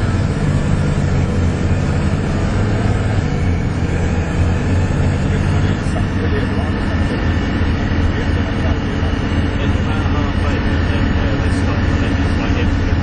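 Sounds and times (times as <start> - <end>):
diesel bus engine droning: 0.0 - 13.0.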